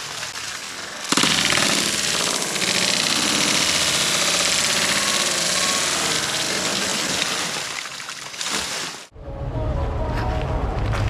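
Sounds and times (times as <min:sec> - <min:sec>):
heavy rain on hard surfaces: 0:00.0 - 0:07.9.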